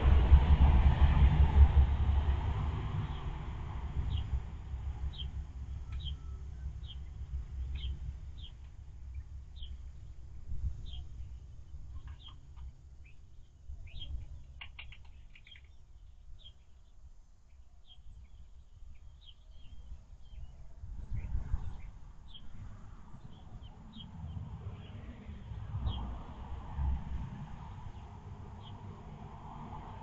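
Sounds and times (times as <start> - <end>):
low rumble: 0.0 - 14.5
small birds chirping: 4.0 - 26.1.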